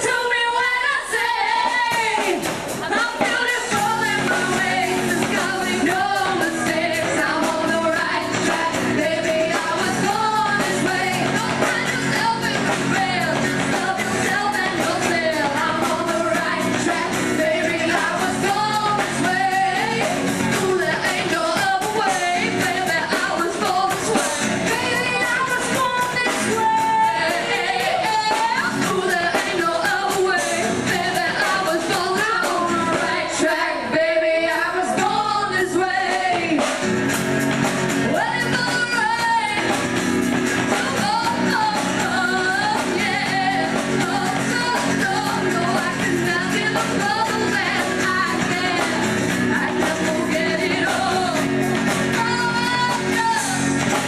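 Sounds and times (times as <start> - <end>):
band with drums: 0.0 - 54.0
women singing: 0.0 - 54.0.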